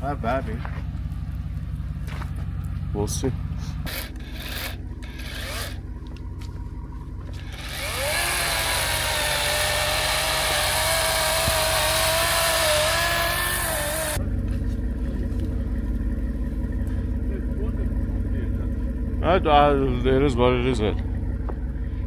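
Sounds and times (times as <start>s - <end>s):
low engine rumble: 0.0s - 22.0s
chainsaw revving: 3.8s - 5.8s, 7.4s - 14.2s.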